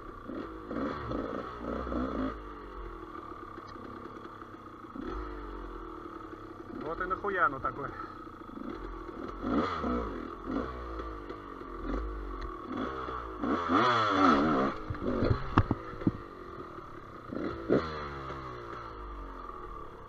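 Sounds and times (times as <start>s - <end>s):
motorcycle engine revving: 0.0s - 20.0s
sharp knocks and clatter: 14.7s - 16.2s.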